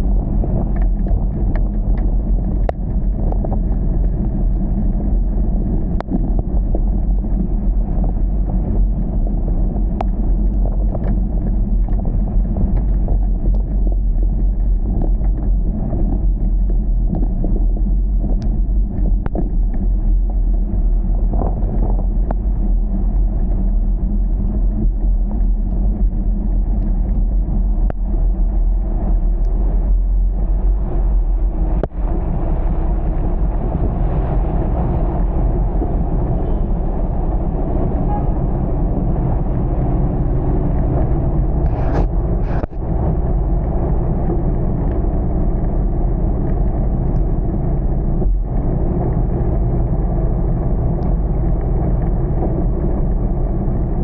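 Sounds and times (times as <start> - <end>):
car driving on wet road: 30.6 - 53.6.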